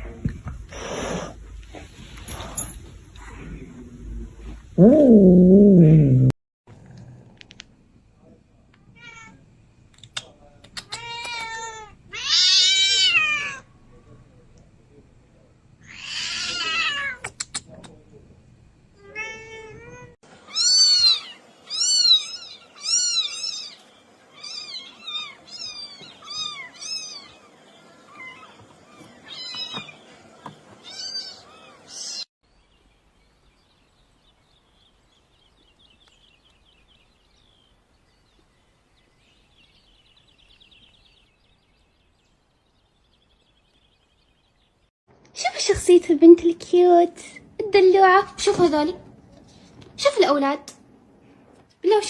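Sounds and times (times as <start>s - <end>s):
cats meowing: 8.9s - 9.4s, 10.9s - 13.7s, 15.8s - 17.2s, 19.0s - 30.0s, 30.8s - 32.2s.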